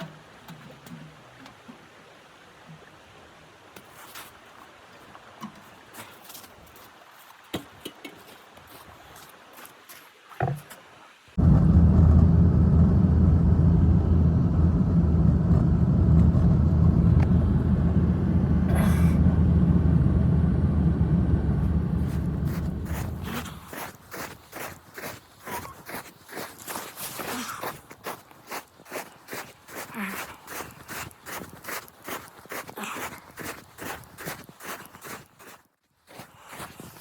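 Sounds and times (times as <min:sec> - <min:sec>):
loud low rumble: 0:11.4 - 0:23.8.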